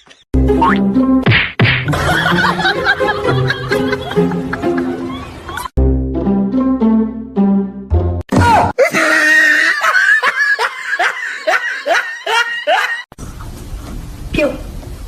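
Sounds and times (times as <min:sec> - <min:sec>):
person laughing hard: 0:01.9 - 0:05.7, 0:08.8 - 0:13.1.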